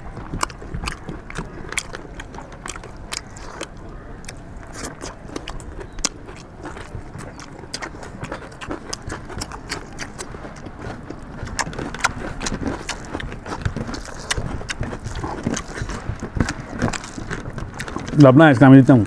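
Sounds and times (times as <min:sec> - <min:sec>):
wet chewing and lip-smacking: 0:00.0 - 0:19.0.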